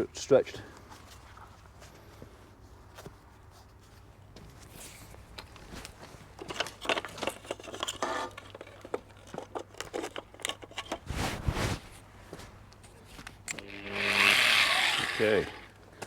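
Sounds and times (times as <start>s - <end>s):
deep scuff: 11.0s - 12.6s.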